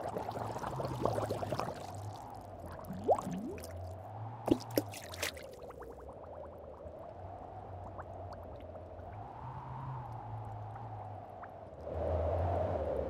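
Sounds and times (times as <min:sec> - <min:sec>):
cartoon water drips: 0:00.0 - 0:03.9, 0:04.5 - 0:09.2.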